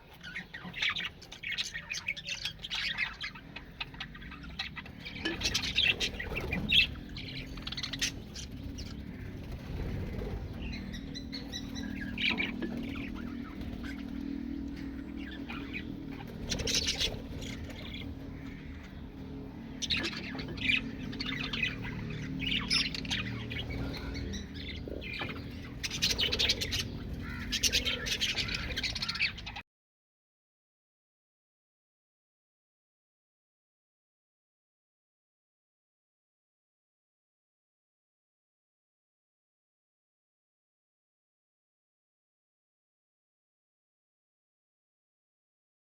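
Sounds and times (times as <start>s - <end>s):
low background hum: 0.1s - 29.6s
parrots squawking: 0.2s - 9.4s, 10.0s - 29.6s.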